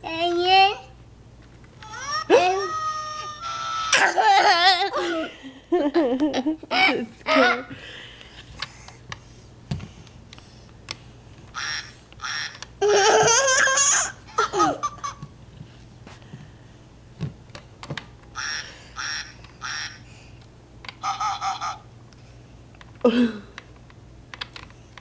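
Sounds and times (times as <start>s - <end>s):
electronic toy sound effects: 1.8s - 4.0s, 11.6s - 12.6s, 18.4s - 20.1s, 21.0s - 21.9s
toddler giggling: 1.9s - 7.6s, 12.8s - 15.2s.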